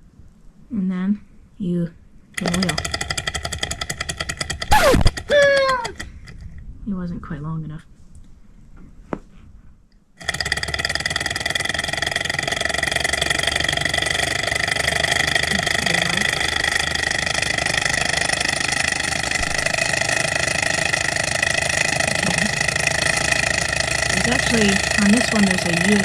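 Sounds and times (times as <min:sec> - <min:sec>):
small engine whirring with whine: 0:02.4 - 0:06.4, 0:10.2 - 0:26.0.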